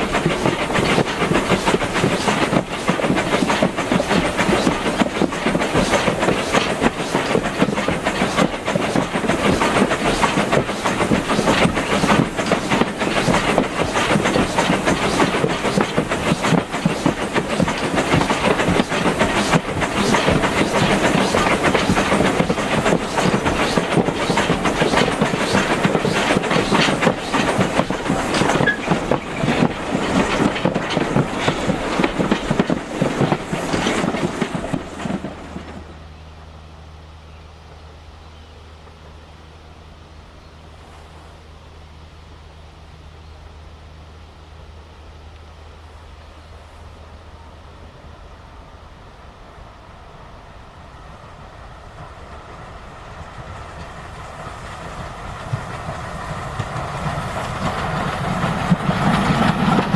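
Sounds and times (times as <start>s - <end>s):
train wheels knocking over rail joints: 0.0s - 36.0s, 53.7s - 59.9s
train rolling rumble: 0.0s - 59.9s.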